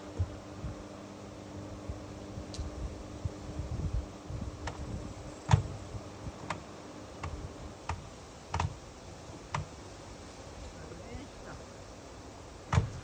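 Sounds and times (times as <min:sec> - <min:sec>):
washing machine clicks with knocks: 0:05.5 - 0:05.8, 0:07.2 - 0:08.8, 0:09.5 - 0:09.8, 0:12.7 - 0:13.0.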